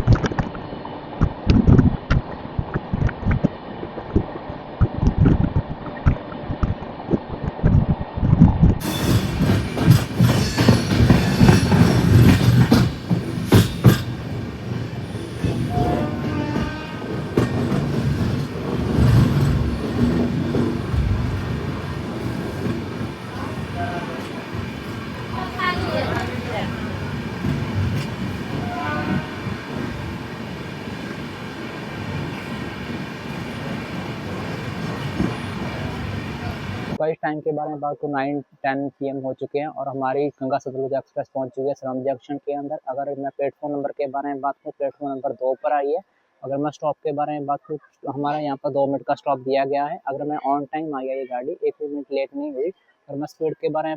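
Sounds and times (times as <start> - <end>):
train rumbling along track: 0.0 - 37.0
wheel clatter over rail joints: 8.8 - 30.7.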